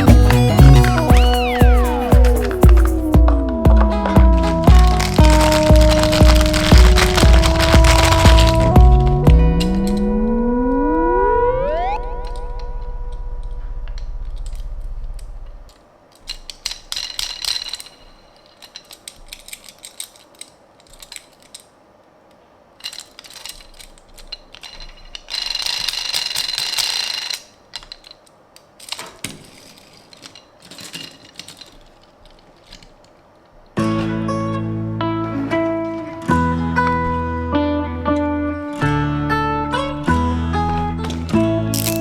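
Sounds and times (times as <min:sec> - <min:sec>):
packaging rustling: 0:00.0 - 0:10.0, 0:22.7 - 0:33.8, 0:39.7 - 0:42.0
toy car clicks and taps: 0:16.2 - 0:21.7, 0:22.8 - 0:32.9.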